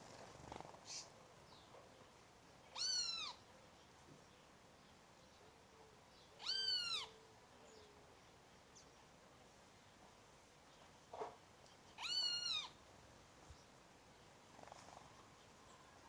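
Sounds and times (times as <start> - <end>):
animal crying: 6.4 - 7.1.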